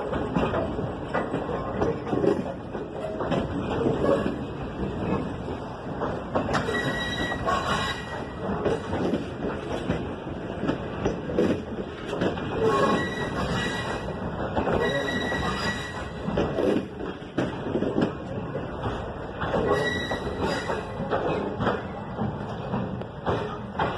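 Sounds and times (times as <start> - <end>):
train rumbling over rails: 0.0 - 23.9
train wheel squeals: 6.5 - 9.1, 12.5 - 16.8, 19.5 - 22.0.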